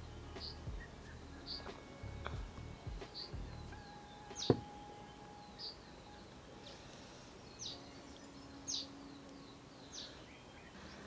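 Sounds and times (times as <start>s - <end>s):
faint outdoor background noise: 0.0s - 11.0s
small birds chirping: 0.0s - 11.0s.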